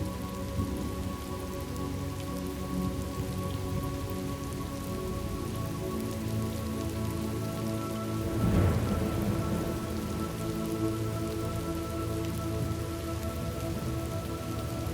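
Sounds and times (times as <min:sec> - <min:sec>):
steady rain: 0:00.0 - 0:14.9
sustained music drone: 0:00.0 - 0:14.9
low thunder rumble: 0:08.2 - 0:14.9.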